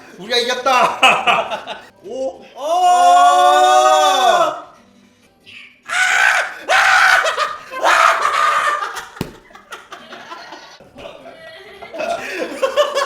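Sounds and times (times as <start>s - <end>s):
people shrieking and laughing: 5.9s - 9.2s.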